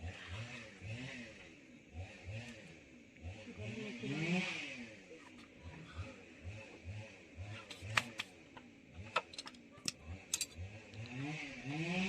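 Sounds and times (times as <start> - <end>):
faint low wavering hum: 0.0 - 12.0
hand tools clinking on metal: 9.3 - 10.6.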